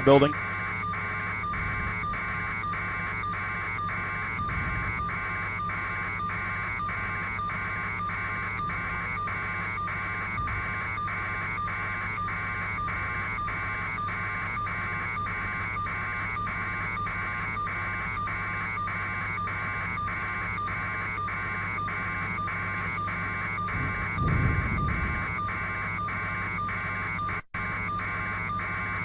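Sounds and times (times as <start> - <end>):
pulsing electronic buzz: 0.0 - 29.0
steady low hum: 0.0 - 29.0.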